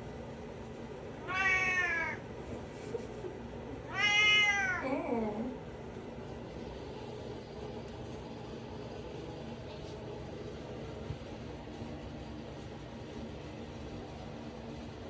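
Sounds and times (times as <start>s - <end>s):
background hum: 0.6s - 15.0s
cat meowing: 1.2s - 2.2s, 3.9s - 5.0s.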